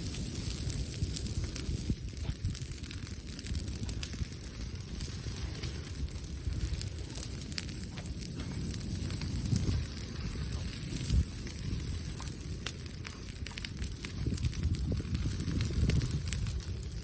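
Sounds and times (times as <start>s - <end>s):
low fire rumble: 0.0s - 17.0s
wood fire crackling: 0.0s - 17.0s.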